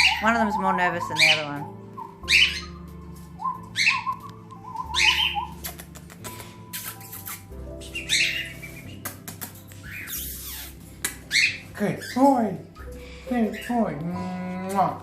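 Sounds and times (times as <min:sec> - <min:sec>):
parrots screeching: 0:00.0 - 0:02.9, 0:03.6 - 0:04.2, 0:04.8 - 0:05.7, 0:06.8 - 0:09.0, 0:09.8 - 0:12.4
soft parrot chirps: 0:00.0 - 0:02.9, 0:03.5 - 0:12.2.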